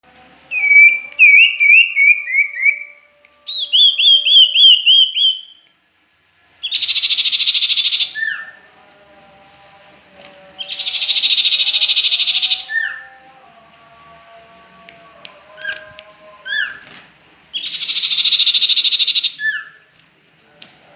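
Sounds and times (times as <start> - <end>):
songbird whistles and trills: 0.5 - 5.7, 6.6 - 8.6, 17.5 - 19.8.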